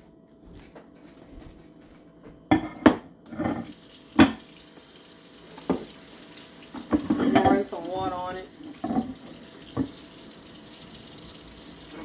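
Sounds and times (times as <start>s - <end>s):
tap running: 3.6s - 12.0s
plate clattering against sink: 6.8s - 8.2s, 8.8s - 9.2s.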